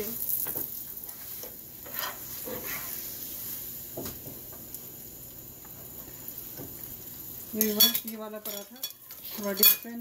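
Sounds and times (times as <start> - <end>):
flatbread sizzling on griddle: 0.0 - 10.0
spatula scraping and tapping: 0.4 - 3.0.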